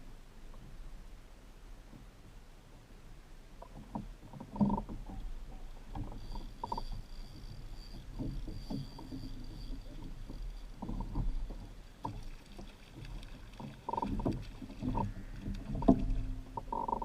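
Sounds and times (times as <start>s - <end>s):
water sloshing against kayak hull: 3.6s - 17.0s.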